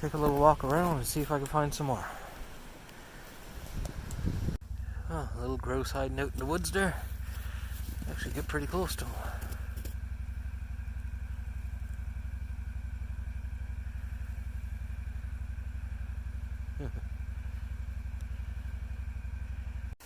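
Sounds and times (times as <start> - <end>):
engine idling: 0.0 - 3.4, 4.2 - 20.0.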